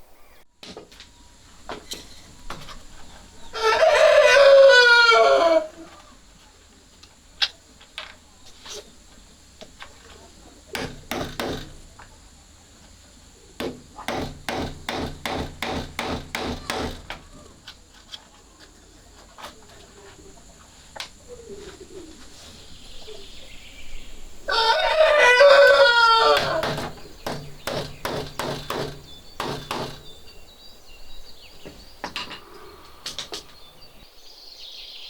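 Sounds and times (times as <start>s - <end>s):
rooster crowing: 3.4s - 6.0s, 24.4s - 27.6s
evenly spaced knocks: 10.8s - 12.0s, 13.6s - 17.5s, 25.6s - 30.3s.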